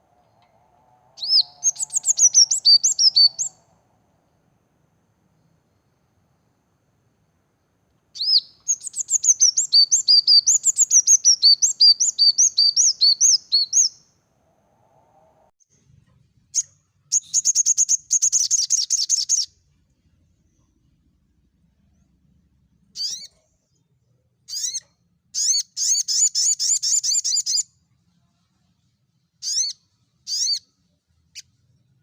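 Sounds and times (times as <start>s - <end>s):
small songbirds singing: 0.0s - 4.1s, 8.1s - 14.2s, 16.5s - 19.6s, 22.9s - 27.7s, 29.4s - 30.7s
rapid high bird trill: 1.2s - 3.6s.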